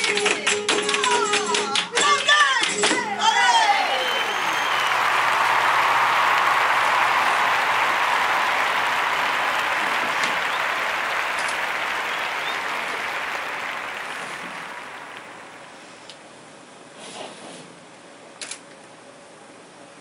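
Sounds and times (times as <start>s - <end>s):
audience applause: 3.1s - 16.0s.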